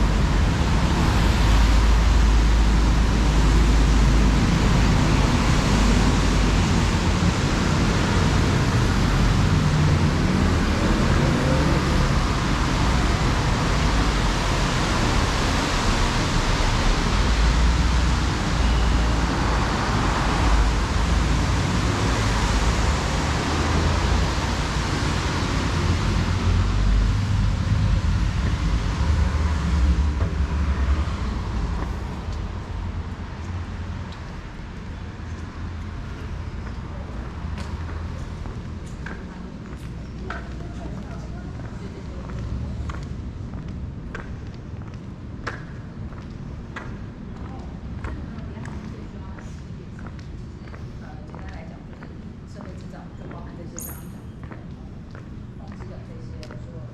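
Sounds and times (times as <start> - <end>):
road traffic rumble: 0.0 - 56.9.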